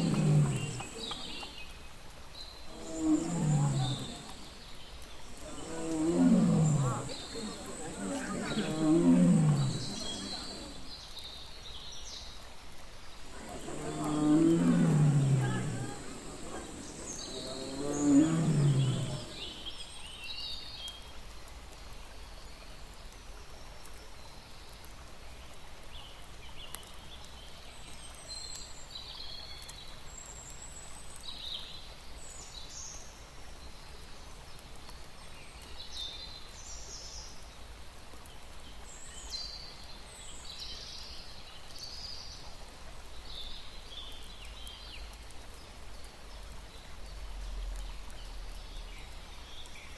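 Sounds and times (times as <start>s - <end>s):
tiger growling: 0.0s - 1.6s, 2.7s - 11.0s, 13.2s - 19.8s.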